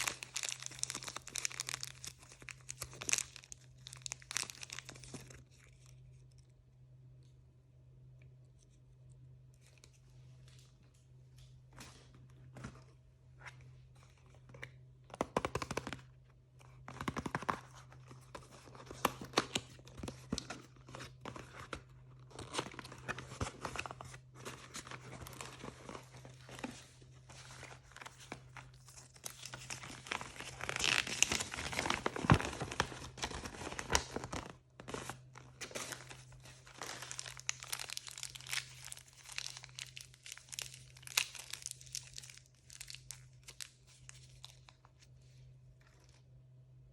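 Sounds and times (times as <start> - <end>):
plastic packaging crinkling: 0.0 - 6.2, 16.7 - 45.2.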